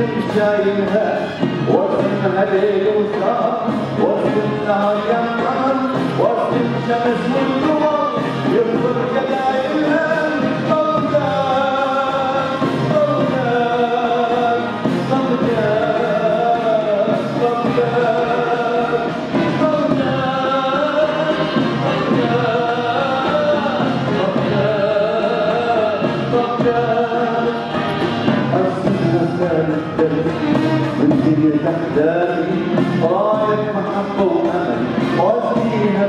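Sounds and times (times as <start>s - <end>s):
orchestral music: 0.0s - 36.0s
solo singing: 0.0s - 36.0s
choir singing: 18.1s - 30.9s.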